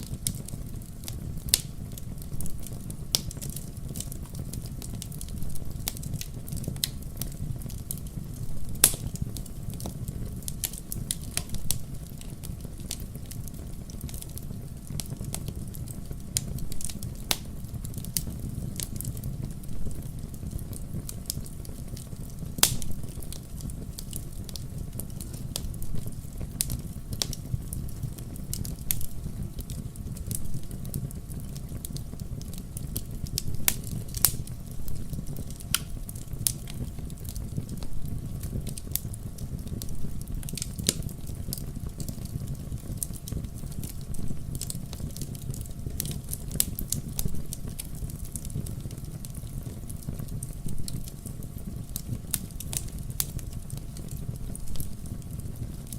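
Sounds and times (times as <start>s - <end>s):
low rumble of flames: 0.0s - 55.9s
wood fire crackling: 0.0s - 55.9s
sharp pops and snaps: 8.8s - 9.2s, 22.6s - 23.0s, 35.4s - 39.1s.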